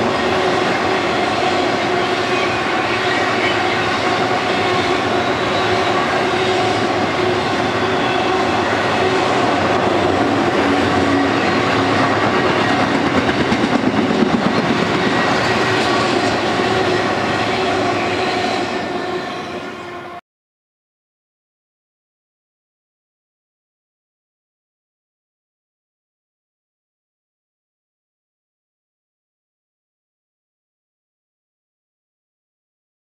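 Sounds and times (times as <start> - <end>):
train wheels clacking: 4.0 - 17.6.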